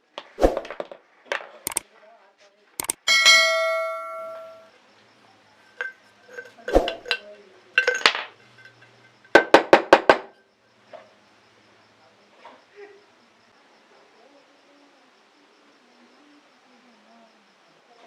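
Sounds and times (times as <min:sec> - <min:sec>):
sharp metal taps: 0:02.8 - 0:04.7
struck metal ringing: 0:03.1 - 0:04.7
metal clinks and scrapes: 0:05.6 - 0:09.4.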